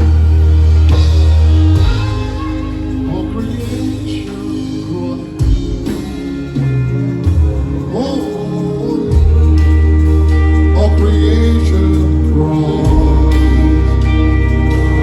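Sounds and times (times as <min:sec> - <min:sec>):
people singing: 0:00.0 - 0:15.0
worship band playing slow song: 0:00.0 - 0:15.0.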